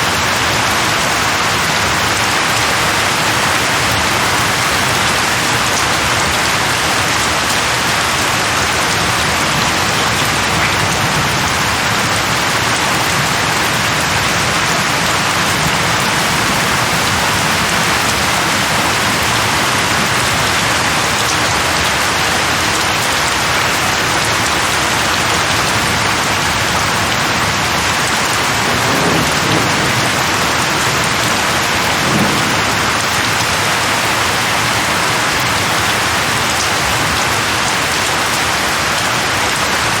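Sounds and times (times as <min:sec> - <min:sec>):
heavy rain falling: 0:00.0 - 0:40.0
distant thunder rumble: 0:10.1 - 0:21.0, 0:28.6 - 0:37.2.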